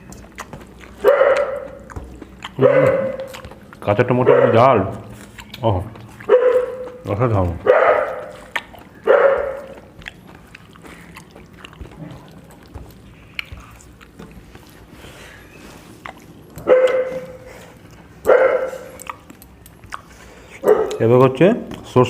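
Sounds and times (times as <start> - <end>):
eating and dishes clicking: 0.0 - 22.0
dog barking: 1.0 - 3.5, 4.2 - 5.0, 6.2 - 9.9, 16.6 - 17.5, 18.2 - 19.0, 20.6 - 21.0.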